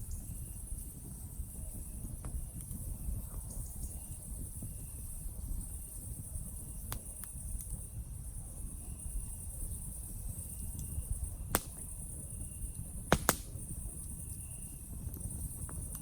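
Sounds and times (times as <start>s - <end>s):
campfire crackling and popping: 4.3s - 16.0s.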